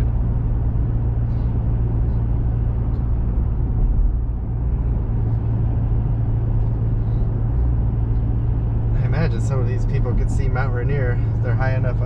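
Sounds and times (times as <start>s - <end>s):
truck engine drone: 0.0s - 12.0s.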